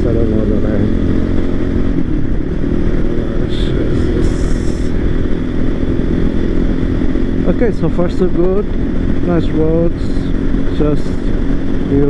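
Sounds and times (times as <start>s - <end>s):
motorcycle engine running: 0.0s - 12.0s
road noise: 0.0s - 12.0s.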